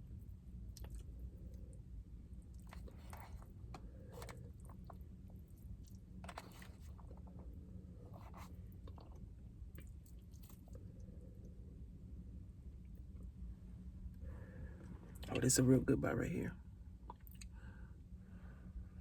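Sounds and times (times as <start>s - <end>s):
steady low hum: 0.0s - 19.0s
chewing food: 0.1s - 1.8s, 2.4s - 11.5s, 17.1s - 17.6s.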